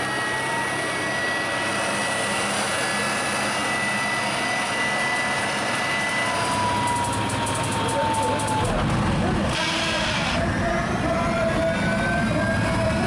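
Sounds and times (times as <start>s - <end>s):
jet engine whine: 0.0s - 13.0s.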